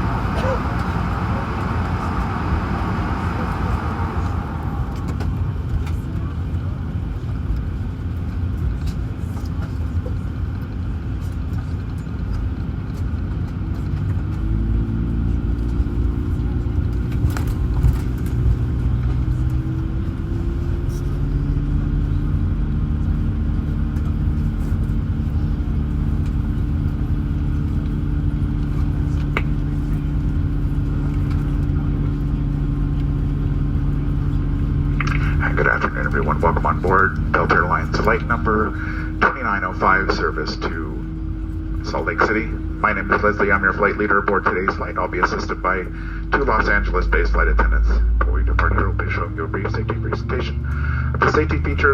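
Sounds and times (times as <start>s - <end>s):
jet engine whining tones: 0.0s - 8.4s, 23.2s - 51.9s
low cabin rumble: 0.0s - 51.9s.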